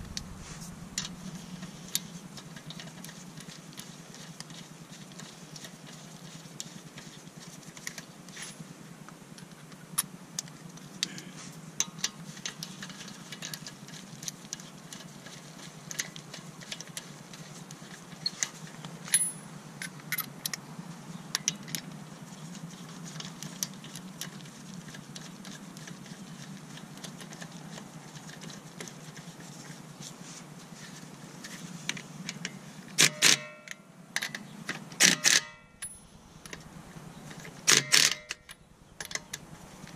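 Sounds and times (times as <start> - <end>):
steady low hum: 0.0 - 39.9
metal clinks of lug nuts: 18.2 - 20.6, 32.4 - 39.9.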